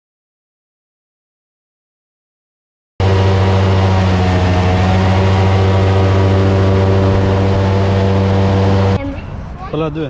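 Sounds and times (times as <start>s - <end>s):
boat engine humming: 3.0s - 9.5s.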